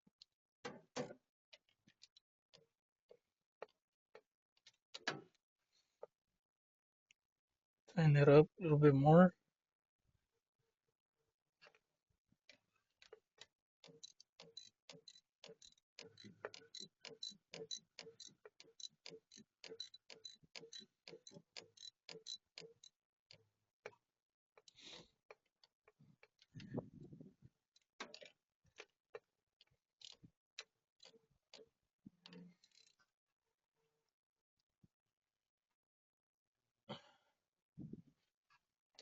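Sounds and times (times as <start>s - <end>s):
ratchet wrench clicking: 13.8s - 22.9s.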